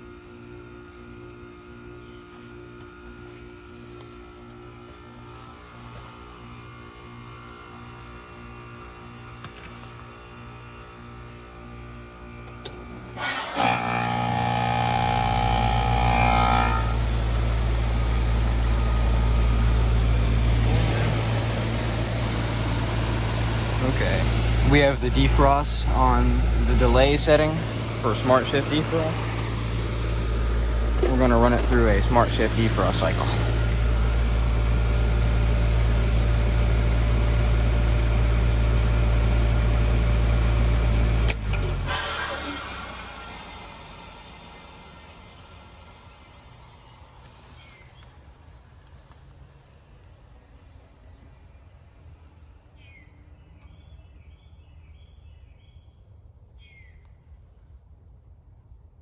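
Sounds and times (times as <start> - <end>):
heat pump compressor hum: 12.4 - 52.8
loud refrigerant hiss: 12.5 - 52.9
high whine: 12.6 - 41.4.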